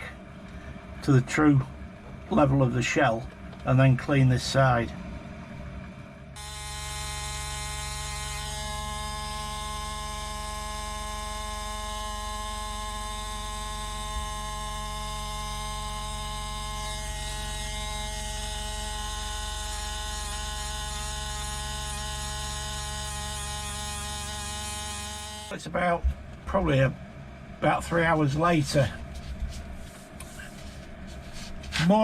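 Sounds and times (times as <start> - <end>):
power tool buzzing hum: 6.4 - 25.6.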